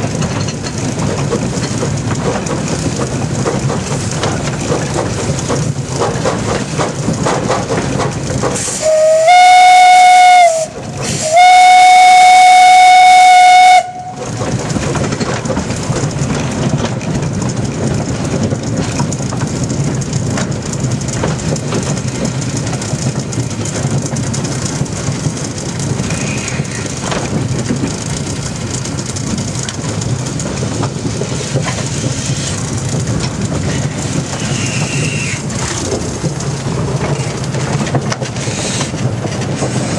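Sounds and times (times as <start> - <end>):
steam locomotive running: 0.0 - 39.9
steam whistle blasts: 8.7 - 14.2.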